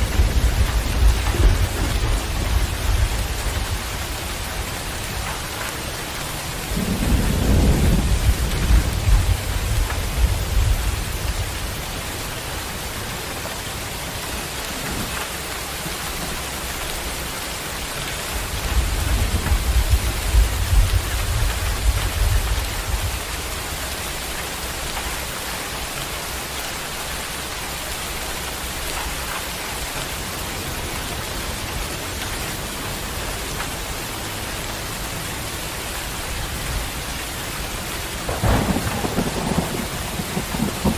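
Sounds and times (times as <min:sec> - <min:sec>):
thunder rumbling: 0:00.0 - 0:25.3, 0:34.5 - 0:40.9
heavy rain falling: 0:00.0 - 0:40.9.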